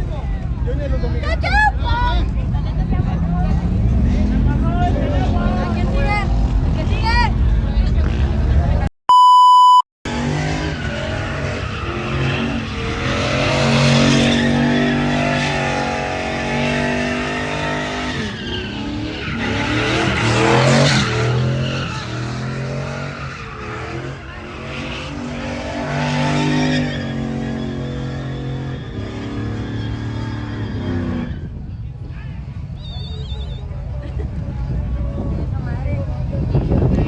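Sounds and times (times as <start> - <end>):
vehicle engine revving: 2.3 - 8.9, 10.1 - 31.6
short bleep: 9.1 - 9.8
tires squealing on pavement: 10.1 - 31.8.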